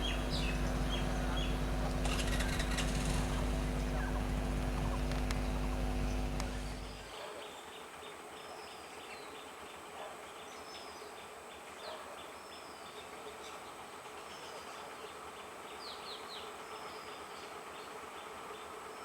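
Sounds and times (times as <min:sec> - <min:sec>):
electric train hum: 0:00.0 - 0:07.1
faint bird chirps: 0:00.0 - 0:07.1
insects chirping: 0:00.0 - 0:07.1.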